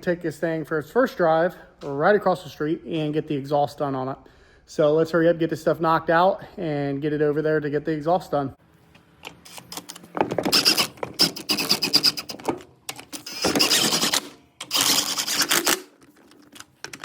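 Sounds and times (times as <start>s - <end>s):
power tool rattling and whining: 9.5s - 16.5s.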